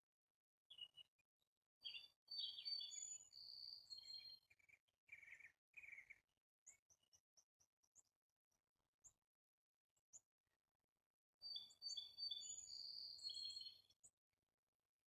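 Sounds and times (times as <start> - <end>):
songbird singing: 0.7 - 1.1, 1.8 - 7.1, 11.4 - 14.0.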